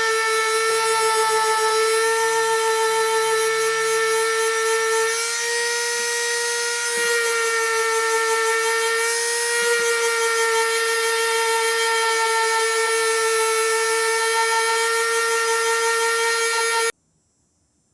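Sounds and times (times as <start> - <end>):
power tool motor whining: 0.0 - 16.9.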